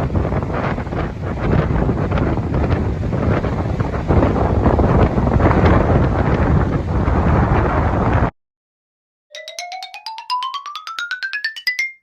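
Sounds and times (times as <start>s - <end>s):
wind blowing across microphone: 0.0s - 8.3s.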